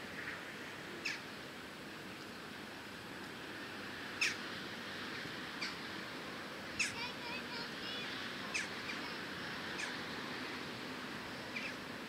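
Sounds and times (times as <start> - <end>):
steady background noise: 0.0 - 12.0
sharp bird calls: 1.0 - 1.2, 4.2 - 4.4, 6.8 - 7.1, 8.5 - 10.0, 11.4 - 11.8.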